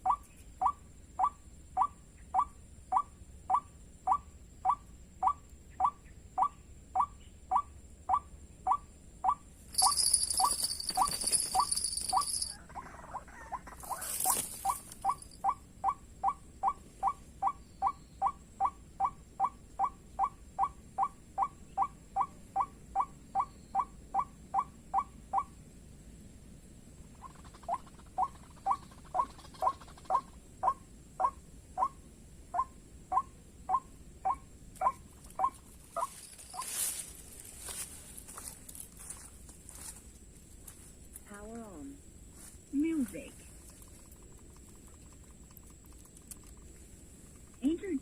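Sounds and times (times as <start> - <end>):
bird clucking calls: 0.0 - 25.5, 27.1 - 32.0, 32.6 - 36.8
rustle: 9.4 - 15.8, 24.4 - 48.0.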